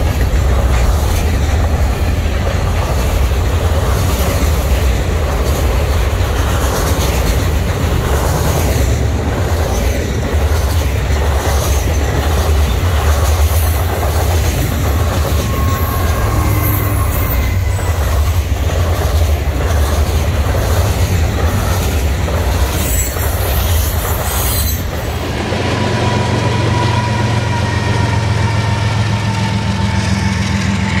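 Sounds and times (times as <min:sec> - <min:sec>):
train wheels clattering on rail: 0:00.0 - 0:31.0
wheel squeal: 0:14.9 - 0:18.4, 0:22.7 - 0:25.2.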